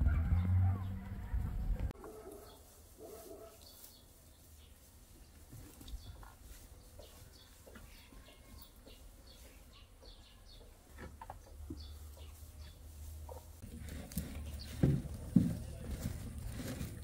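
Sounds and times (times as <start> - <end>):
small birds chirping: 2.2 - 15.0.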